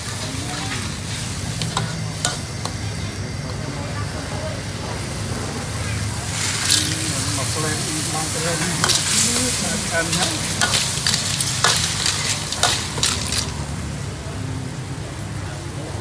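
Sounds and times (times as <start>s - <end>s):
food sizzling in a pan: 0.0s - 14.2s
utensil scraping and clanking: 0.1s - 2.8s, 6.3s - 13.7s.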